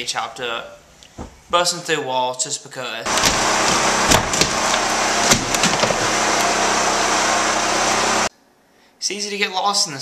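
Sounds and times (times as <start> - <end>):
wood splintering cracks: 3.1 - 6.6
power tool motor running: 3.1 - 8.3.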